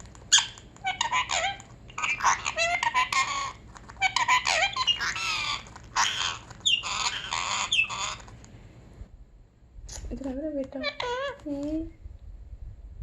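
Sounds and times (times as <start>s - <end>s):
parrot squawking: 0.3s - 8.4s, 10.8s - 11.4s.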